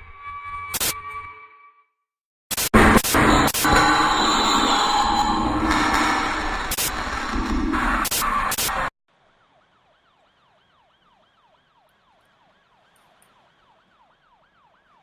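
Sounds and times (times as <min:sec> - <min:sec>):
loud noise with sharp clicks: 0:02.5 - 0:08.9
faint siren wailing: 0:08.0 - 0:15.0.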